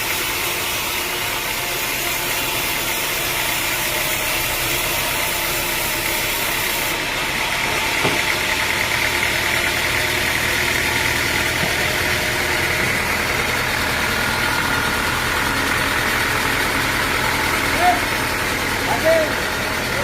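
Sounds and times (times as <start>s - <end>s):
sawmill machinery humming: 0.0s - 20.0s.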